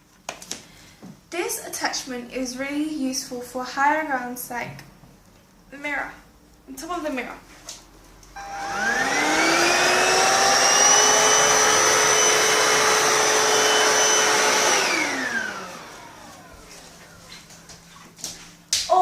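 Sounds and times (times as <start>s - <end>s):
stick vacuum motor whining: 8.4s - 16.7s.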